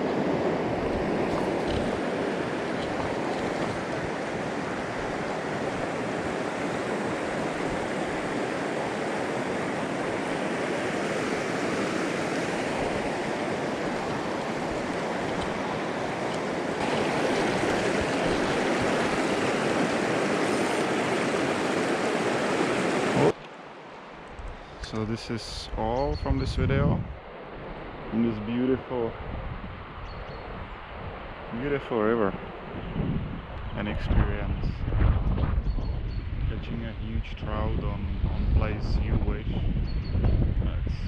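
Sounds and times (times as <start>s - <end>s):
river water rushing: 0.0s - 24.2s.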